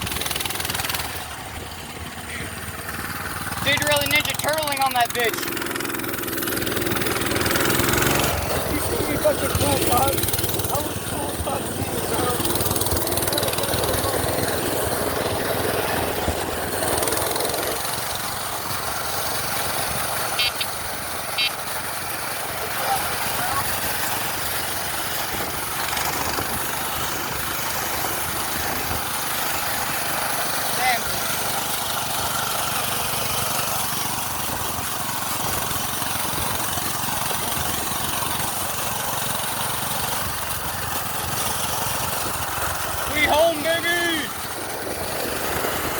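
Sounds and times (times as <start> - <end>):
small gas engine running: 0.0 - 45.9
wind and road noise: 0.0 - 45.9
high electronic chirp: 20.4 - 21.6.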